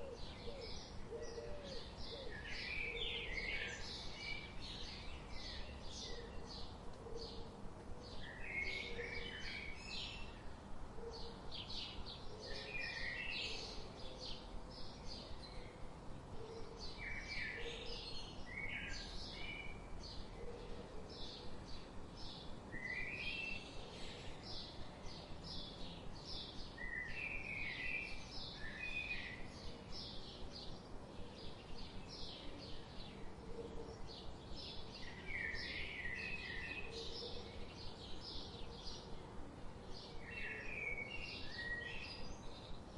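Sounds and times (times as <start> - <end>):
faint background hiss: 0.0 - 42.9.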